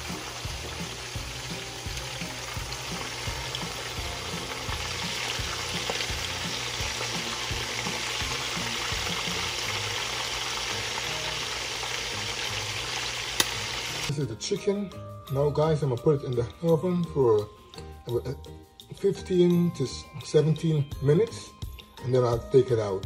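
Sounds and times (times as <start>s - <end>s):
food sizzling in a pan: 0.0s - 14.1s.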